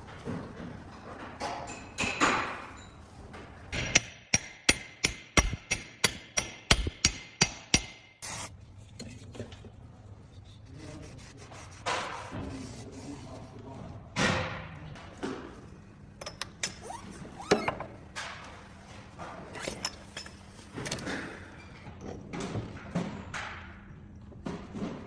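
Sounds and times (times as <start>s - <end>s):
hammer striking metal: 3.7s - 8.2s.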